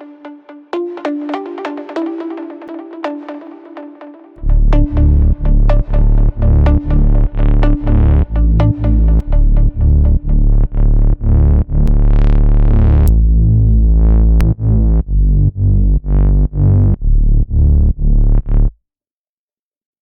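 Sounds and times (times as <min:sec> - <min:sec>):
pumping house synth chords and bass: 0:04.4 - 0:13.4.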